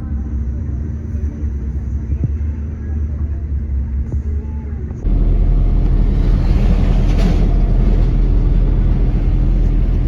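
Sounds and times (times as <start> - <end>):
vehicle rumbling: 3.5 - 10.0.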